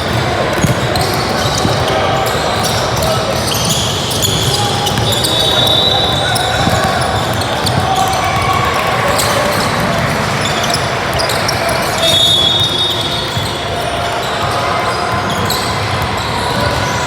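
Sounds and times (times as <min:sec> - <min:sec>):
referee whistle blast: 0:04.4 - 0:06.9, 0:11.9 - 0:13.3
basketball bouncing on hardwood: 0:06.5 - 0:10.2.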